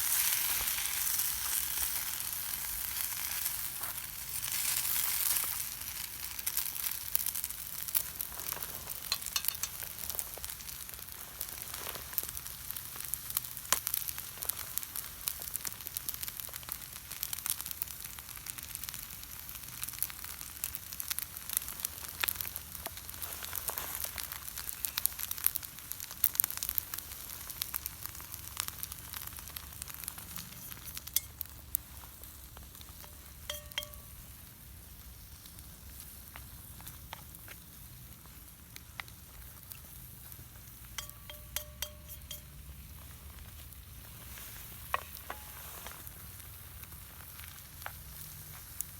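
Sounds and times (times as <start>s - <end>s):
food sizzling in a pan: 0.0s - 38.3s, 39.4s - 48.9s
stirring in a pan: 6.5s - 10.6s, 29.2s - 34.5s, 39.4s - 48.7s.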